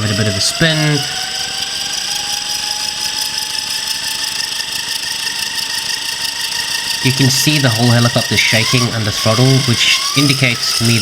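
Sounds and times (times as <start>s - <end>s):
model helicopter motor and rotors whine: 0.0s - 11.0s.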